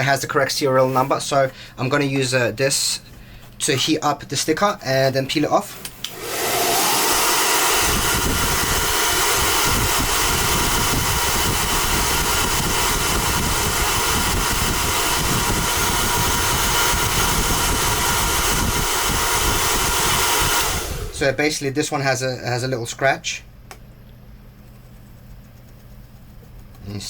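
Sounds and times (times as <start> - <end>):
hair dryer running: 6.0 - 21.4.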